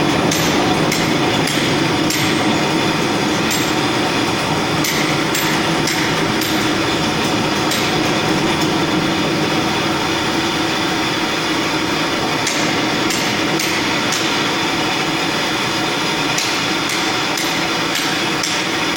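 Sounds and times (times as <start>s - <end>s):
concrete floor grinder running: 0.0s - 18.9s
sharp ticks: 0.2s - 2.5s.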